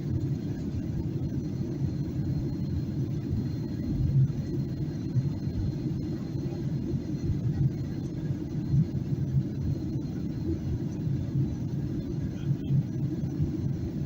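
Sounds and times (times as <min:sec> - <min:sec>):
aircraft cabin engine drone: 0:00.0 - 0:14.0.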